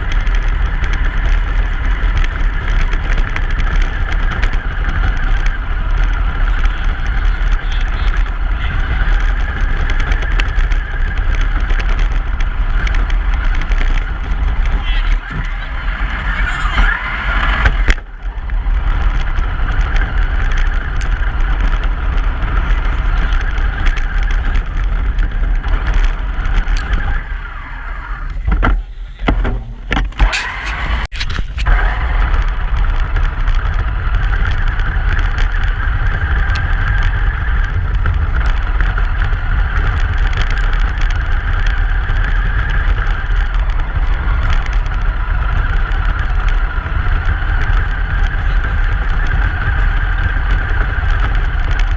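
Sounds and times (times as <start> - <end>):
truck engine and road rumble: 0.0 - 51.9
clicks and knocks: 28.3 - 31.7.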